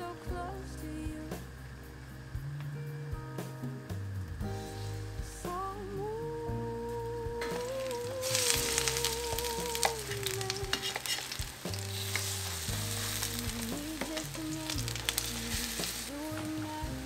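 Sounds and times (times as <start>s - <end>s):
soft background music: 0.0s - 17.0s
batter sizzling in oil: 7.4s - 17.0s
wooden spatula scraping: 7.5s - 17.0s.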